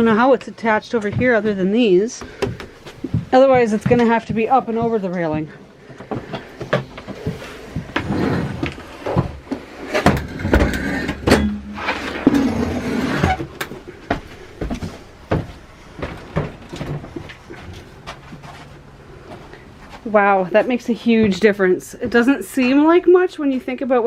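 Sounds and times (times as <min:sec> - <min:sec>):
metal scraping: 0:08.0 - 0:13.6
metal knocks and clanks: 0:10.0 - 0:12.6.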